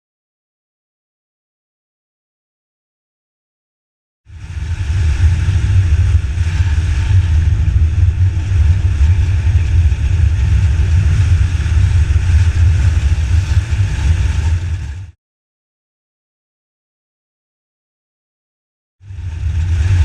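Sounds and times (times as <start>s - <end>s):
motorcycle engine and road noise: 4.3s - 15.2s, 19.0s - 20.0s
wind buffeting microphone: 4.3s - 15.2s, 19.0s - 20.0s.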